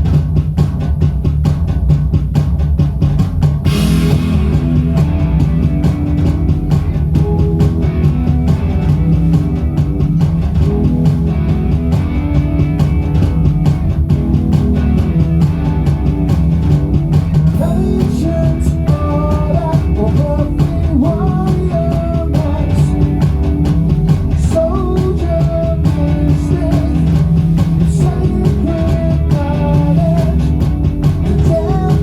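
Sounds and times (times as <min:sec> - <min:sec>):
drum kit: 0:00.0 - 0:32.0
rock band playing: 0:03.0 - 0:32.0.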